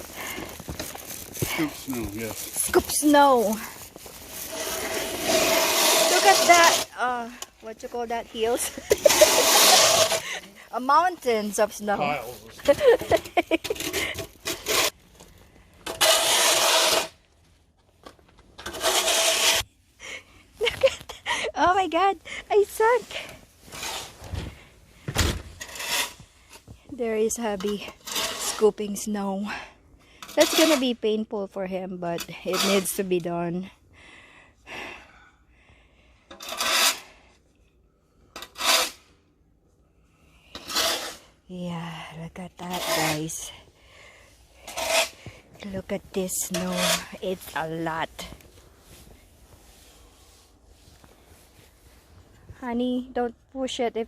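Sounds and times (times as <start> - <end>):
rasping crunches in deep snow: 0.0 - 7.0, 7.9 - 13.0
soft snow crackles: 0.0 - 7.0, 10.6 - 13.0, 45.2 - 53.0
rasping scrapes through snow: 0.0 - 7.2, 7.8 - 13.0, 16.0 - 17.2, 18.7 - 19.7, 22.5 - 24.2, 42.4 - 43.6, 44.6 - 52.4.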